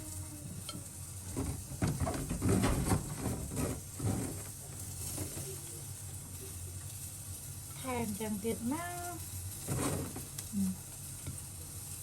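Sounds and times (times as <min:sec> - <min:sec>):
food rustling and clattering: 0:01.2 - 0:05.7, 0:09.3 - 0:10.5.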